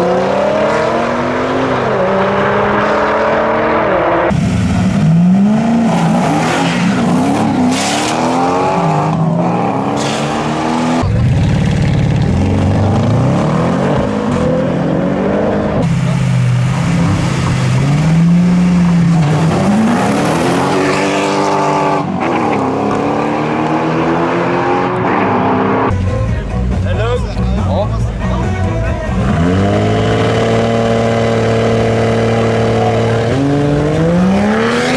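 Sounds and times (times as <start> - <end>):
car engines revving: 0.0 - 34.9.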